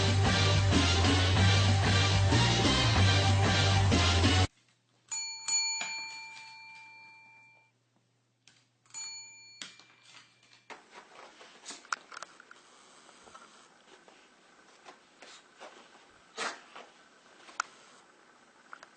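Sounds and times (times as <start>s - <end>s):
music: 0.0s - 4.5s
doorbell chime ringing: 5.1s - 7.7s, 8.9s - 10.6s.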